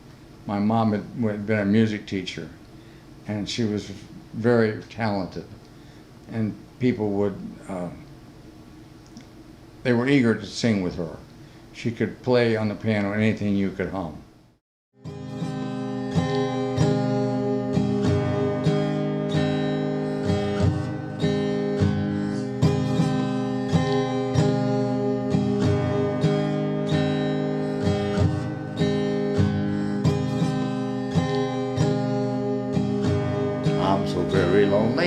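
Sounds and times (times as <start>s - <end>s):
acoustic guitar strumming: 15.0s - 35.0s.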